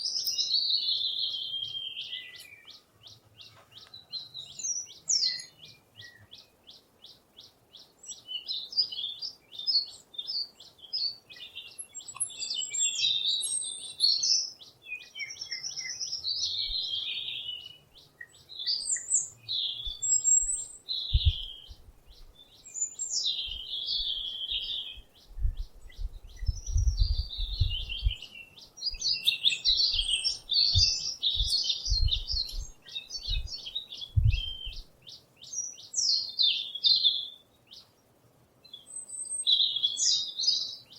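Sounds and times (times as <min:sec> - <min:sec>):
songbirds chirping: 0:00.0 - 0:40.9
dull low thuds: 0:21.1 - 0:22.3, 0:25.3 - 0:28.2, 0:30.7 - 0:34.8.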